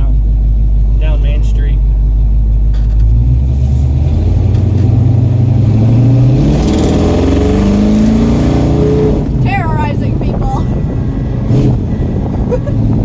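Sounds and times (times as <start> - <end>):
truck engine accelerating: 0.0 - 13.0.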